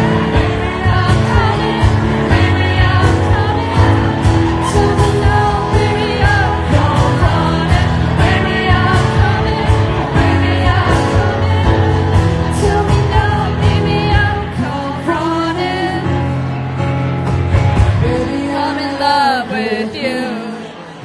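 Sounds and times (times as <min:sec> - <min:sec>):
drums beating: 0:00.0 - 0:14.5
person singing: 0:00.0 - 0:17.0, 0:17.8 - 0:21.0
live pop band playing: 0:00.0 - 0:21.0.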